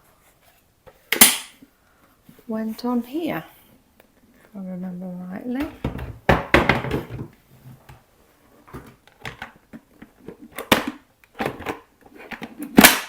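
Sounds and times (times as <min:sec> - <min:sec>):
plastic parts knocking and clicking: 0:05.6 - 0:08.0, 0:08.7 - 0:13.0.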